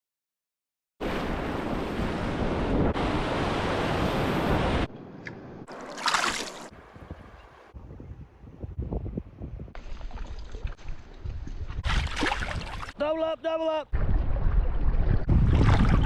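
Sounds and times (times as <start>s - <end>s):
wind buffeting microphone: 6.7s - 13.0s, 13.9s - 16.0s.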